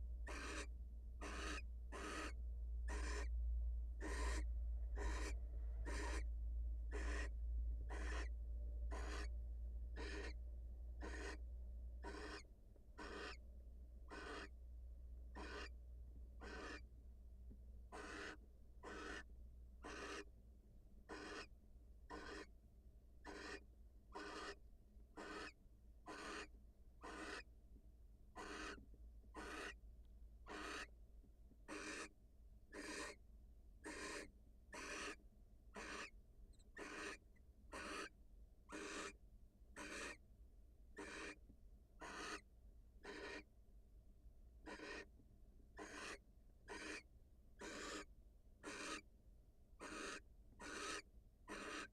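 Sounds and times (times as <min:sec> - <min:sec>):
steady low hum: 0:00.0 - 0:22.0
barn owl rasping hissing calls: 0:00.2 - 0:03.3, 0:04.0 - 0:06.3, 0:06.9 - 0:07.3, 0:07.9 - 0:08.3, 0:08.9 - 0:09.3, 0:10.0 - 0:10.4, 0:11.0 - 0:11.4, 0:12.0 - 0:13.4, 0:14.1 - 0:14.5, 0:15.3 - 0:15.8, 0:16.4 - 0:16.8, 0:17.9 - 0:20.3, 0:21.1 - 0:21.5, 0:22.1 - 0:22.5, 0:23.2 - 0:24.6, 0:25.2 - 0:27.5, 0:28.4 - 0:28.8, 0:29.4 - 0:29.8, 0:30.5 - 0:30.9, 0:31.7 - 0:32.1, 0:32.7 - 0:33.2, 0:33.8 - 0:35.2, 0:35.8 - 0:38.1, 0:38.7 - 0:39.2, 0:39.8 - 0:40.2, 0:41.0 - 0:41.4, 0:42.0 - 0:43.5, 0:44.6 - 0:45.1, 0:45.8 - 0:49.0, 0:49.8 - 0:51.9.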